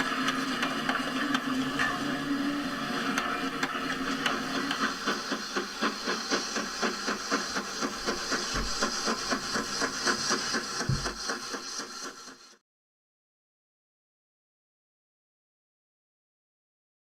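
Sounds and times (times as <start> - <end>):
model train chuffing: 0.0 - 12.6
model train motor whirring: 0.0 - 12.6.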